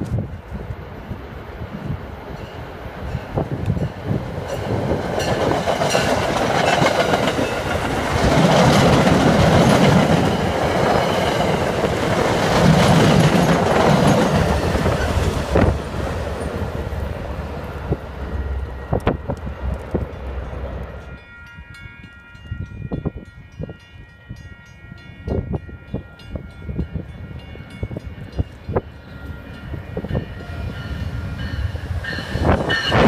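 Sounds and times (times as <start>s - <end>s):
commuter train passing at speed: 0.0s - 33.0s
diesel locomotive passing: 0.0s - 33.0s
wheels clicking over rail joints: 3.6s - 17.0s.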